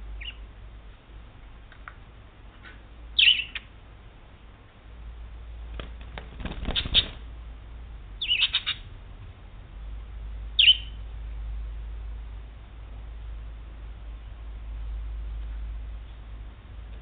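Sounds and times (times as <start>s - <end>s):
budgerigar chirping: 0.2s - 0.4s, 3.2s - 3.6s, 8.2s - 8.9s, 10.6s - 11.0s.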